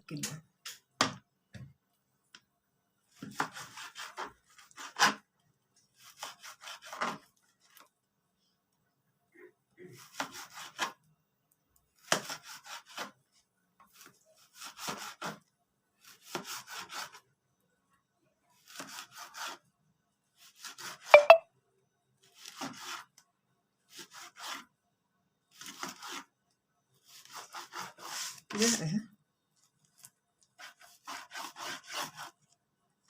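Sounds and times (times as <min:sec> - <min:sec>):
knife sawing through frozen liver: 0:03.2 - 0:05.2, 0:06.0 - 0:07.3, 0:09.8 - 0:11.0, 0:12.0 - 0:13.2, 0:14.0 - 0:15.4, 0:16.0 - 0:17.2, 0:18.6 - 0:19.7, 0:22.3 - 0:23.2, 0:23.9 - 0:24.7, 0:25.5 - 0:26.3, 0:27.0 - 0:28.6, 0:30.6 - 0:32.5.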